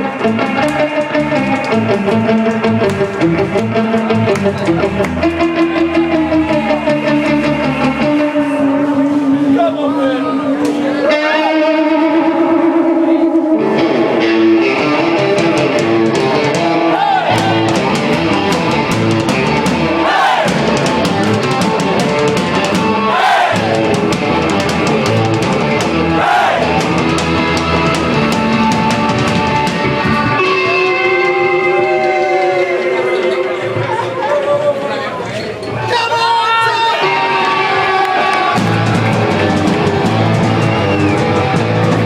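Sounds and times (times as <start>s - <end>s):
electric guitar: 0.0s - 9.6s, 10.3s - 34.4s, 37.0s - 42.0s
drum kit beat: 15.3s - 30.8s, 38.6s - 42.0s.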